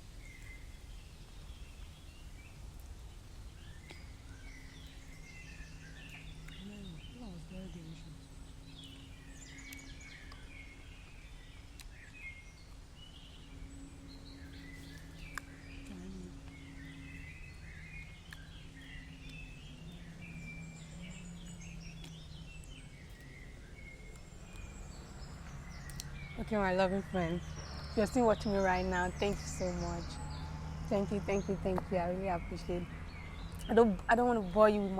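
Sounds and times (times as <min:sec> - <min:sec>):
birds chirping: 0:00.0 - 0:34.9
faint low hum: 0:00.0 - 0:34.9.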